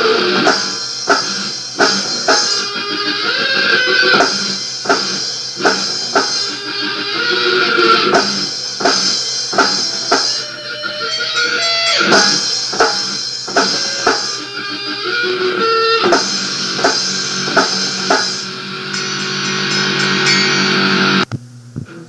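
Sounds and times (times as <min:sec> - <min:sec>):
electric guitar: 0:00.0 - 0:22.0
drum hits: 0:16.8 - 0:21.5.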